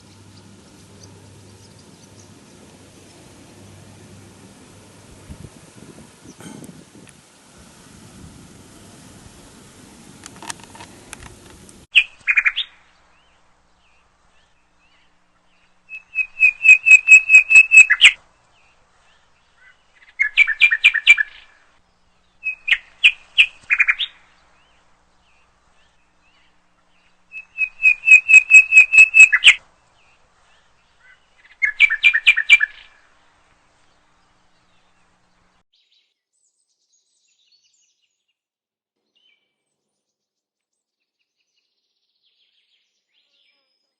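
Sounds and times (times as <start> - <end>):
bird singing high notes: 15.9 - 18.2, 27.3 - 29.6.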